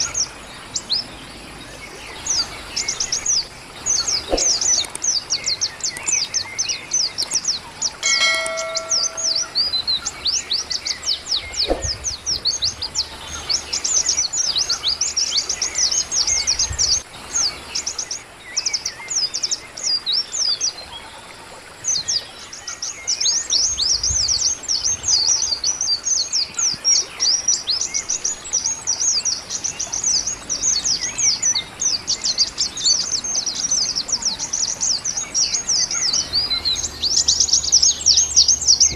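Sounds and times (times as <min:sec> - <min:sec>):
small birds chirping: 0:00.0 - 0:38.9
short steady tone: 0:08.0 - 0:09.7.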